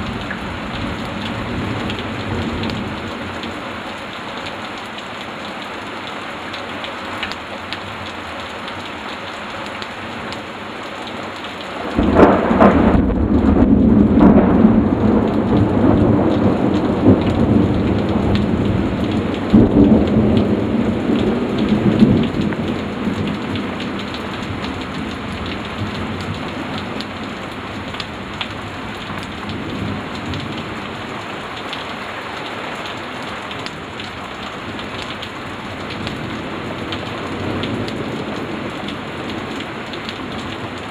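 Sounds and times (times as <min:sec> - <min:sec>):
heavy rain: 0:00.0 - 0:40.9
thunder clap and rumble: 0:11.8 - 0:27.1.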